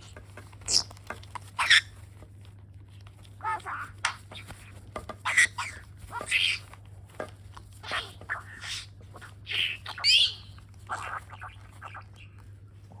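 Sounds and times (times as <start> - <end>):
budgerigar chirping and chattering: 0.7 - 0.9, 1.5 - 2.0, 3.4 - 6.7, 7.8 - 12.4.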